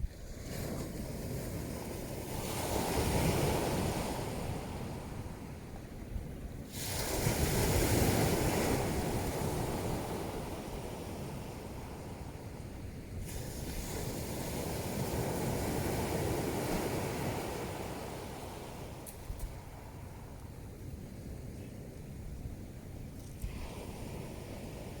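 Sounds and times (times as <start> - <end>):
waves breaking on pebble beach: 0.5 - 5.2, 6.7 - 12.1, 13.2 - 20.3, 23.4 - 25.0.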